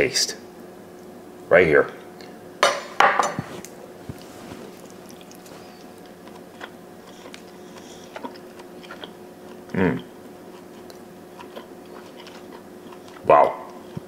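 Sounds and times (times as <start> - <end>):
steady hum: 0.0 - 14.0
person chewing meat: 3.7 - 14.0.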